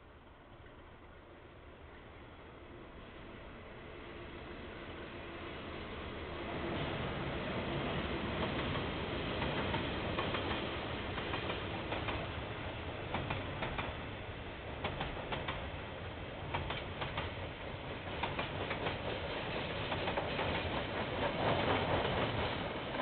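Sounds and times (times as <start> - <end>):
train rumbling past: 0.0 - 23.0
wheels clicking over rail joints: 16.5 - 17.4, 18.1 - 23.0.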